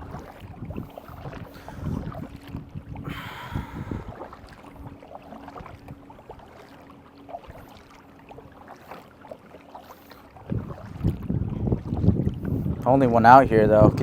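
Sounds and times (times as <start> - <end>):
wind on microphone: 0.0 - 6.0, 10.4 - 14.0
water splashing around kayak: 0.0 - 14.0.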